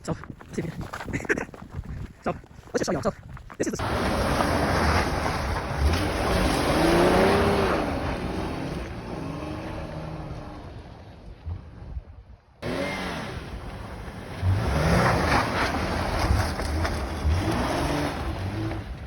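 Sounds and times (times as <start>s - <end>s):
car engine revving: 3.8s - 11.9s, 12.6s - 19.0s.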